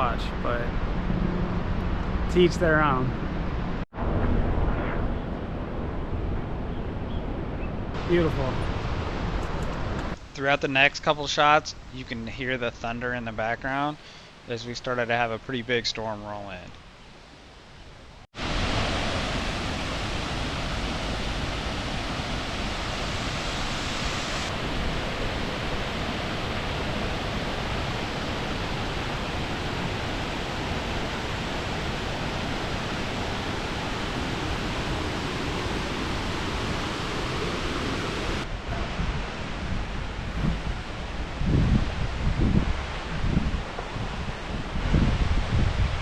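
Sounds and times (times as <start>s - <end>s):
waterfall roaring: 18.4s - 44.8s
wind buffeting microphone: 18.4s - 46.0s.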